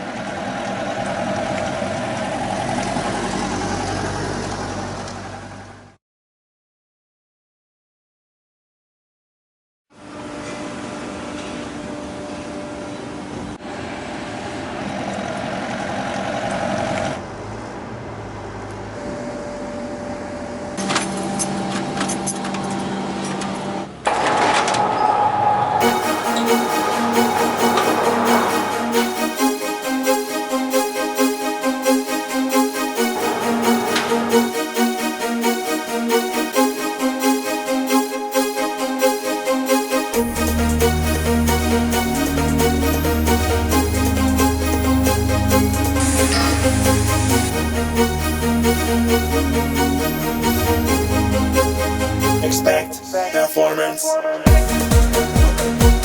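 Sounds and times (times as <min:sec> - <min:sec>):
machine humming: 0:25.8 - 0:53.0.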